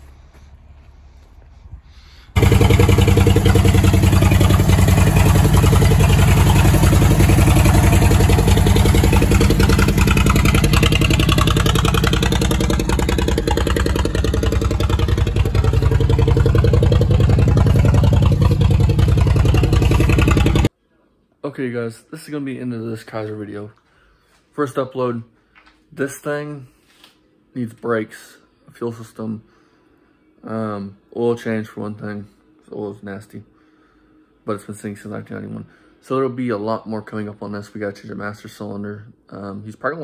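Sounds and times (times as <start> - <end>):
car engine idling: 2.4 - 20.7.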